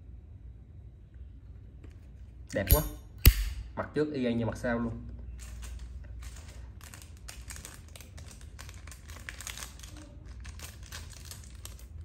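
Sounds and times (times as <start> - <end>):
crinkling and rustling: 5.3 - 12.0.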